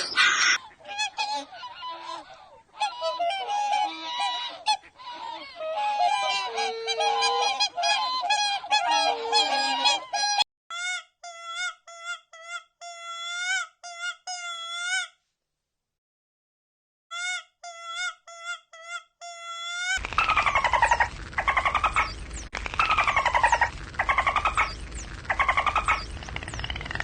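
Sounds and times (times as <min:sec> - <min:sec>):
flock of birds honking: 0:00.0 - 0:10.4, 0:20.0 - 0:27.0.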